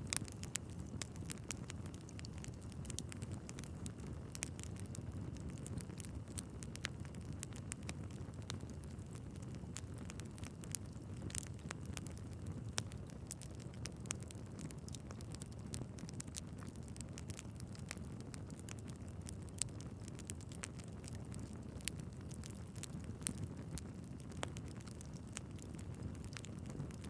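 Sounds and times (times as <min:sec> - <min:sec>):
fire rumbling in fireplace: 0:00.0 - 0:27.0
logs crackling and popping: 0:00.0 - 0:27.0.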